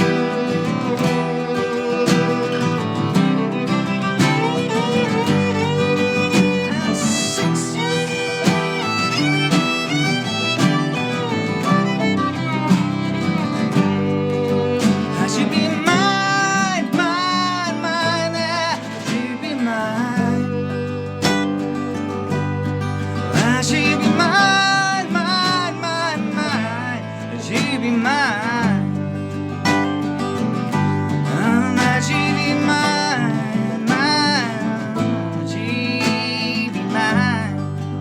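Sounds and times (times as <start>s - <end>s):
live band playing: 0.0s - 15.2s
guitar melody with vibrato: 0.0s - 38.0s.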